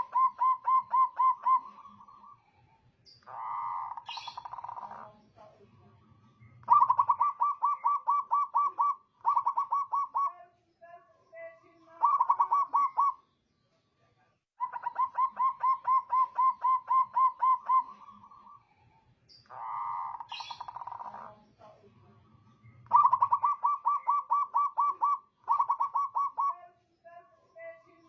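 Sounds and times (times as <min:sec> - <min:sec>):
dove cooing: 0:00.0 - 0:05.5, 0:06.6 - 0:10.4, 0:12.0 - 0:13.2, 0:14.6 - 0:18.6, 0:19.5 - 0:21.8, 0:22.8 - 0:26.7.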